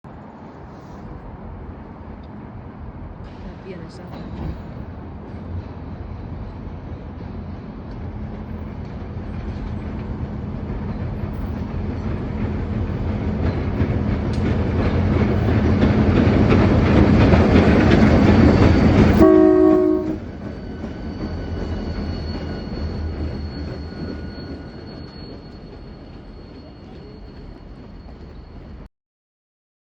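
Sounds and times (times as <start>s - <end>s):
diesel locomotives rumbling past: 0.1s - 28.9s
short horn toot: 19.2s - 20.2s.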